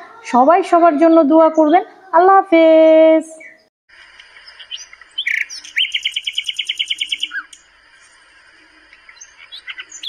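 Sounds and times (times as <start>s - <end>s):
short bird chirps: 4.4s - 7.6s
bird trilling: 4.4s - 7.7s, 9.0s - 10.0s.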